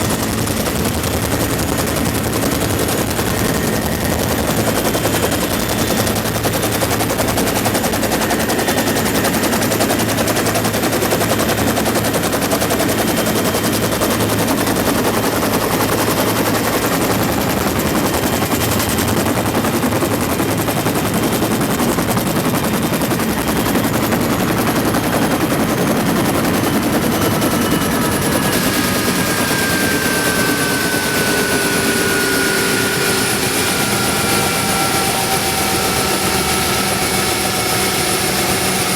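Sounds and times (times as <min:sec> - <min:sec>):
helicopter rotor beat and turbine whine: 0:00.0 - 0:38.9
falling whine: 0:25.8 - 0:38.9.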